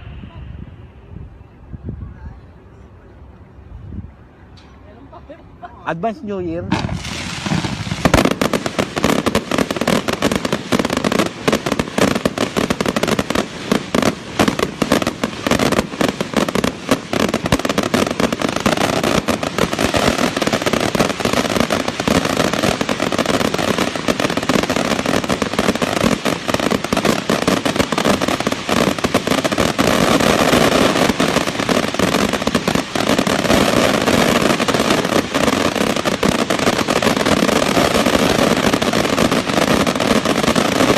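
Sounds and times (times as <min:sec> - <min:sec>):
firecrackers going off rapidly: 0:06.7 - 0:40.9.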